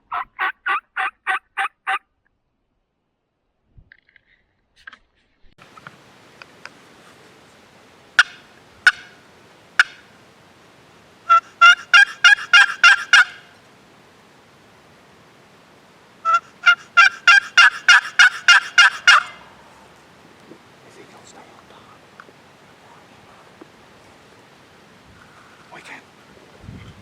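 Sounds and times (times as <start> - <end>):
turkey call clucks: 0.0 - 2.0, 8.2 - 9.2, 9.8 - 10.1, 11.3 - 13.6, 16.2 - 19.5
turkey call yelps: 0.0 - 2.0, 11.3 - 13.6, 16.2 - 19.5.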